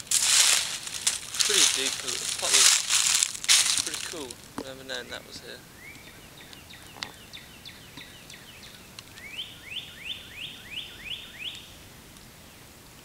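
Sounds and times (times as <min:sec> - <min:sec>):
songbird chirping and whistling: 0:05.7 - 0:11.8.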